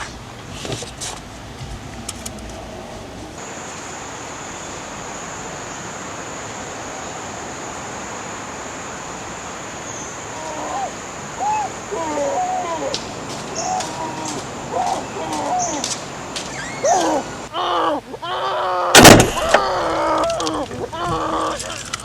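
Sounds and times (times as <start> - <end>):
rushing outdoor background noise: 0.0 - 22.0
pigeon cooing: 10.3 - 22.0.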